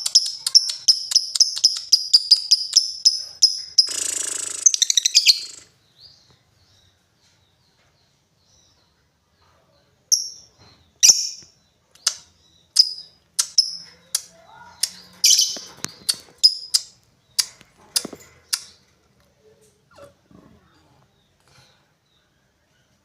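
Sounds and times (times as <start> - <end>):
bird high-pitched calls: 0.0 - 5.7, 12.8 - 17.6.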